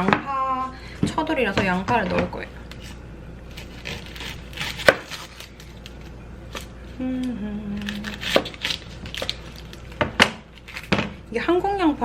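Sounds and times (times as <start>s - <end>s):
knife cutting onion on board: 3.6s - 5.4s.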